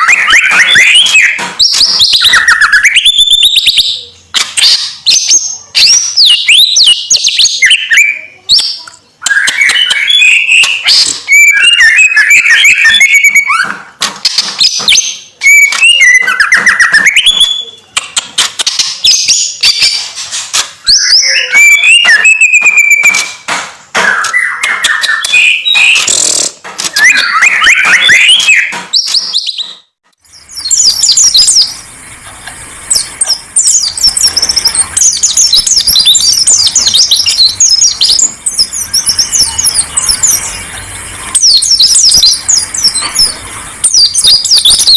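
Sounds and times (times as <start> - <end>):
high quick bird twittering: 0.0 - 13.7, 30.3 - 44.9
songbirds singing: 0.0 - 20.2, 20.8 - 44.9.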